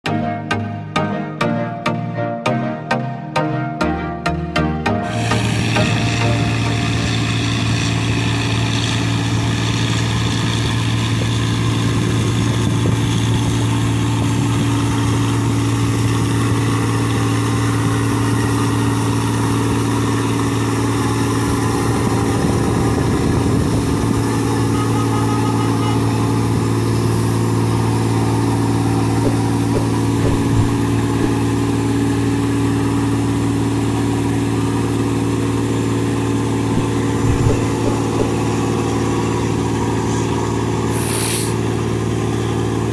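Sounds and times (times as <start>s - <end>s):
boat engine droning: 5.0s - 42.9s.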